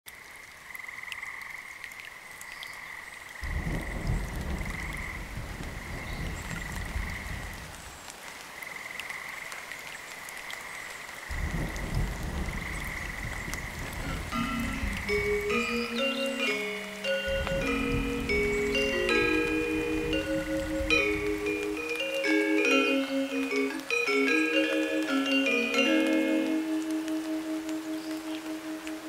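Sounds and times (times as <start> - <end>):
frogs croaking: 0.1 - 29.0
low rumbling noise: 3.4 - 7.7, 11.3 - 22.0
high-pitched chorus: 14.1 - 29.0
metallophone notes: 14.3 - 28.8.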